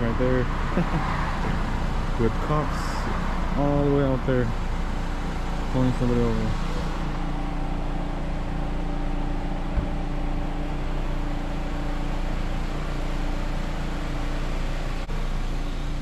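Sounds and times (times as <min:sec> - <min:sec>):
car engine humming: 0:00.0 - 0:16.0
faint low thump: 0:09.7 - 0:10.0.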